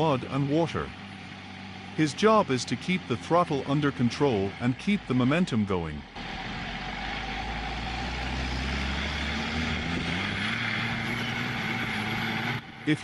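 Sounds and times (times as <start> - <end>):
truck diesel engine under throttle: 0.0 - 13.0.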